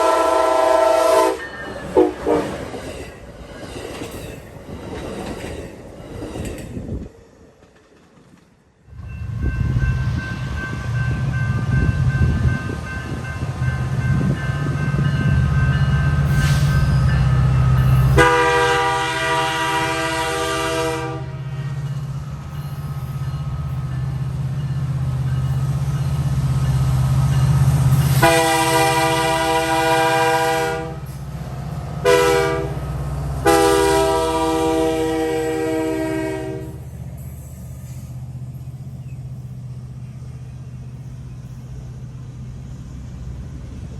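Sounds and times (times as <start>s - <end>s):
locomotive horn blasts: 0.0s - 2.6s, 18.2s - 21.5s, 28.1s - 31.1s, 32.0s - 32.8s, 33.4s - 36.8s.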